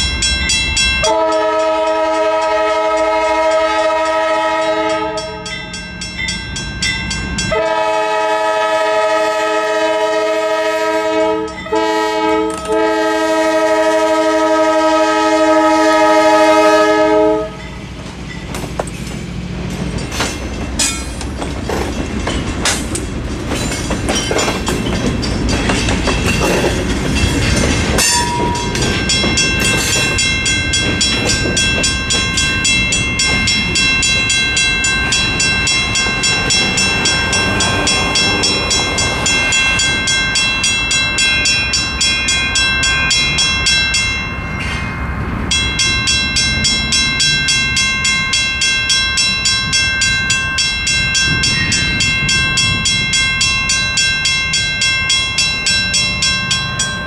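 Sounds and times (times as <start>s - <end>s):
mechanical crossing bell ringing: 0.0s - 7.6s, 11.4s - 13.0s, 23.5s - 57.0s
diesel locomotives rumbling: 0.0s - 57.0s
wheels knocking over rail joints: 18.5s - 32.6s.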